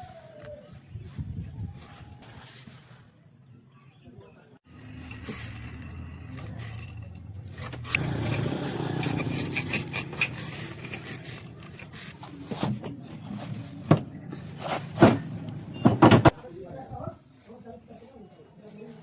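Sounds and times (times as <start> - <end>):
metal scraping and grinding: 4.7 - 16.4.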